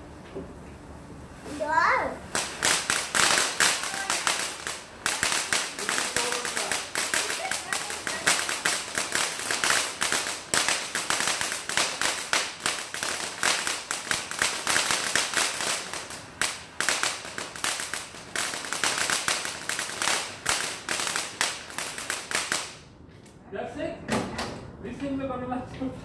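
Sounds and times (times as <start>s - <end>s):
firecrackers cracking and popping: 2.2s - 23.1s.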